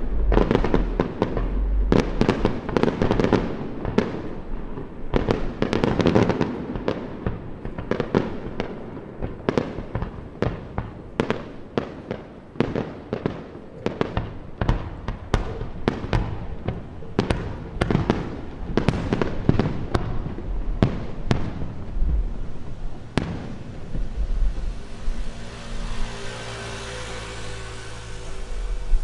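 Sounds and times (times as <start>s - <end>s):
steady low hum: 0.0s - 5.1s, 18.4s - 29.0s
fireworks bursting: 0.0s - 29.0s.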